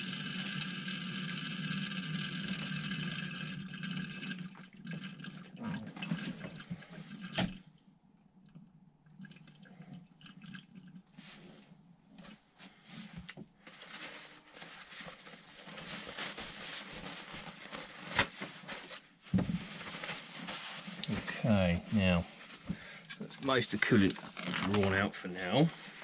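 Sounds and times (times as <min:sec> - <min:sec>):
liquid running: 0:00.0 - 0:07.7.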